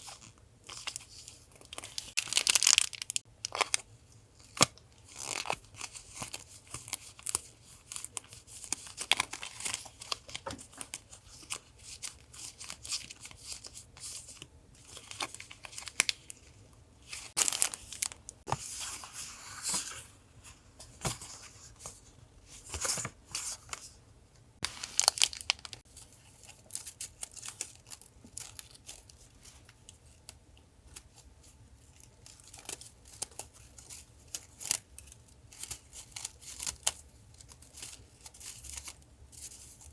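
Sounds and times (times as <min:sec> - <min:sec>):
paper crinkling and tearing: 0:17.1 - 0:18.3, 0:24.6 - 0:29.5.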